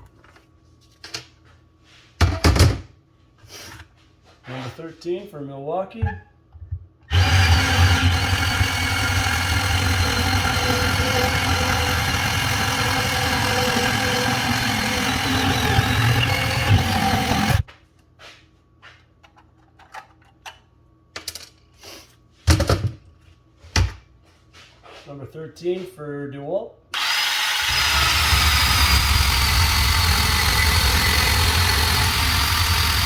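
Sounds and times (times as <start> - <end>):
bandsaw cutting pipe: 7.1 - 17.7, 27.0 - 33.0.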